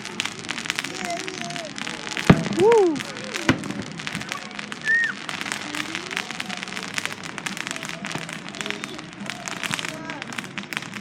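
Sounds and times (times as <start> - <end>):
firework bang: 0.0 - 11.0
firework whistle: 0.0 - 11.0
fireworks crackling: 0.0 - 11.0.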